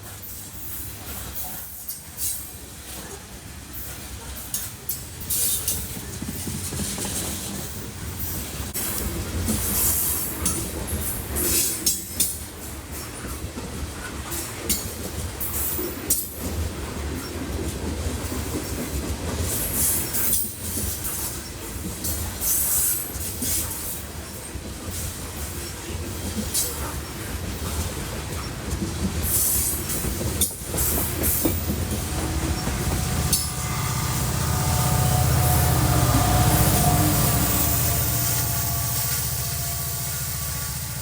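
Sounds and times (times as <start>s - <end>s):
train clanks: 0.0s - 41.0s
train wheels rumbling on rails: 0.0s - 41.0s
wheel squeals: 29.2s - 41.0s
locomotive engine drone: 29.7s - 41.0s.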